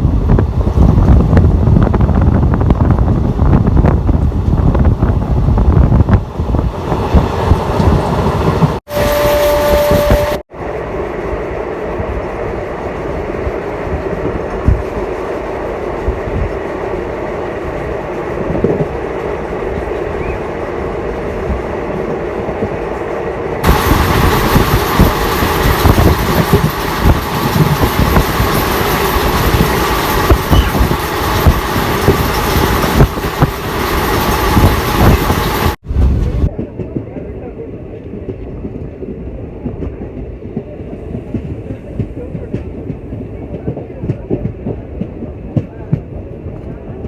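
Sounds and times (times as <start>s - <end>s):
train wheels clattering on rails: 12.9s - 46.8s.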